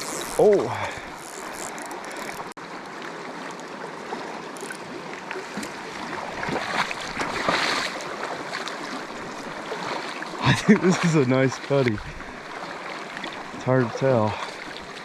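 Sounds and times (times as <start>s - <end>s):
river water rushing over rocks: 0.0s - 11.4s
water splashes: 0.0s - 15.0s.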